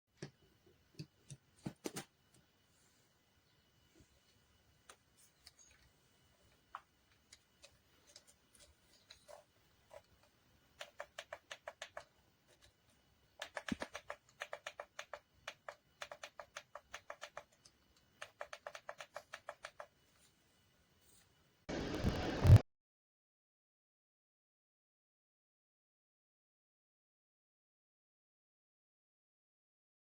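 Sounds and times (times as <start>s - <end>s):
rapid light clicks: 13.4s - 19.9s.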